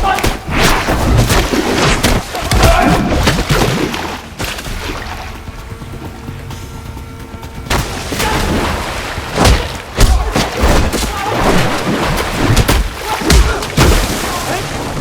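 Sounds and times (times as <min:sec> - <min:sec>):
punch and kick impacts: 0:00.0 - 0:03.8, 0:09.3 - 0:14.4
background music: 0:00.0 - 0:15.0.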